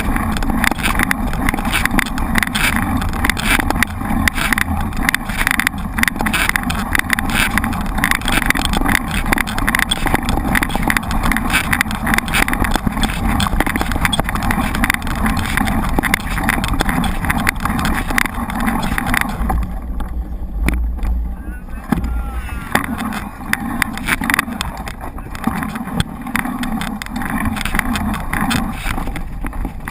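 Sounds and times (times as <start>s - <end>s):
bike rattling and knocking: 0.0s - 29.9s
wind on microphone: 0.0s - 29.9s.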